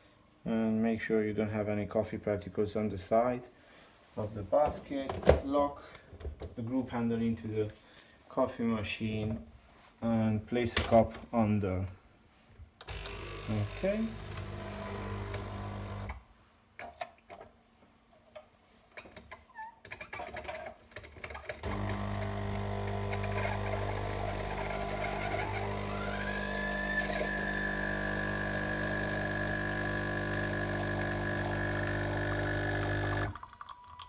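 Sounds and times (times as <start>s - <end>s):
espresso machine pump running: 12.9s - 16.2s, 21.6s - 33.5s.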